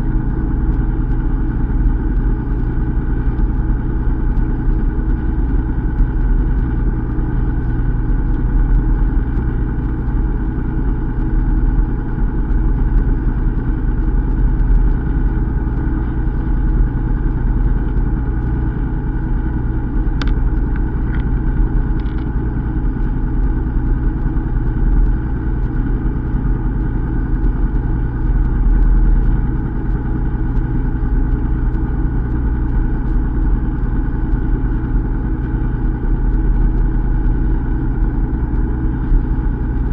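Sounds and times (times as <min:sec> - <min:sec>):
boat engine humming: 0:06.7 - 0:33.0.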